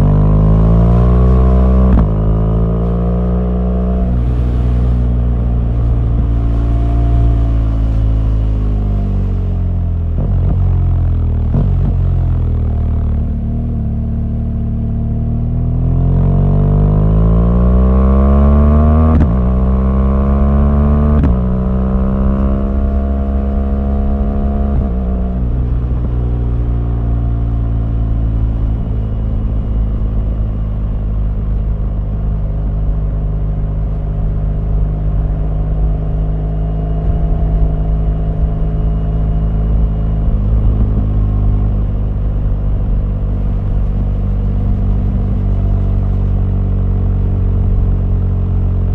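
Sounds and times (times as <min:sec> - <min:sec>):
motorcycle engine accelerating: 0:00.0 - 0:48.9.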